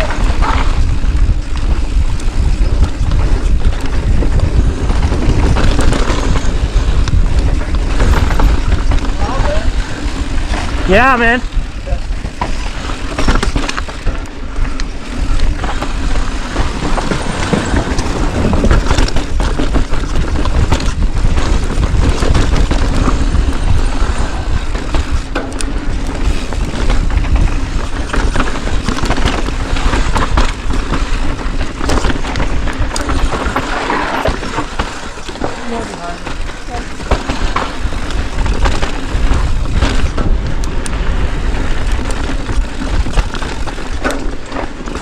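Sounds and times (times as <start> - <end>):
clatter of riding over rough ground: 0.0 - 45.0
wind rushing over microphone: 0.0 - 45.0.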